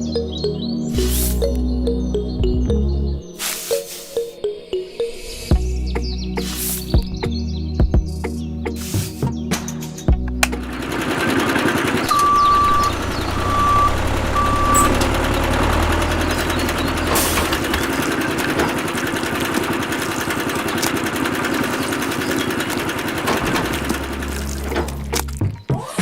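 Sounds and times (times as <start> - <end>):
machine motor running: 10.5 - 25.0
reversing alarm beeping: 12.1 - 16.1.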